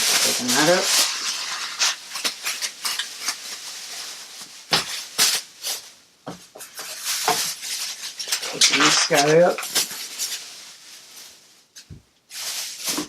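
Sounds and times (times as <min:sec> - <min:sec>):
packaging rustling and clicking: 0:00.0 - 0:05.8.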